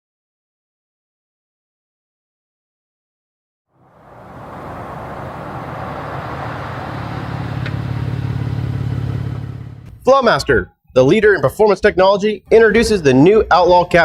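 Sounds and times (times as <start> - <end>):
truck engine running: 3.8 - 10.0.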